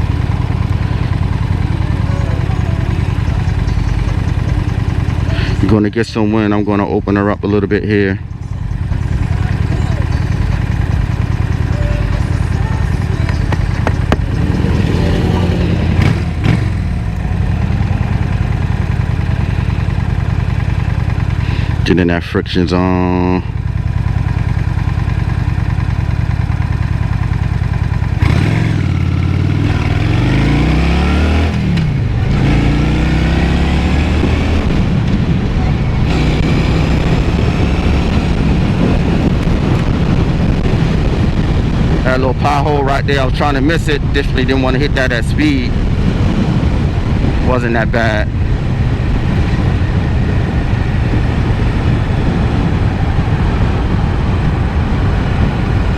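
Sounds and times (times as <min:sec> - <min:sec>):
motorcycle engine running: 0:00.0 - 0:55.9
wind noise: 0:29.4 - 0:55.9.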